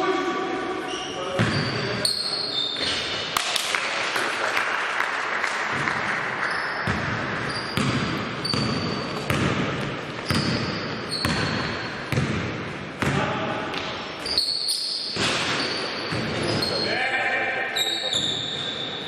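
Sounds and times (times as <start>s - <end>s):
echoing hall noise: 0.0s - 19.0s
sneakers squeaking on floor: 0.8s - 3.3s, 5.7s - 17.0s, 17.7s - 19.0s
basketball dribbling: 6.8s - 13.8s.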